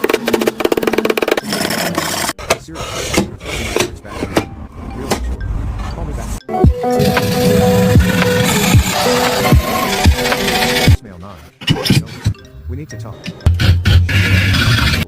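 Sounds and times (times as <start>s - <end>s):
hand tool rasping wood: 0.0s - 4.1s, 6.9s - 11.0s, 13.5s - 15.0s.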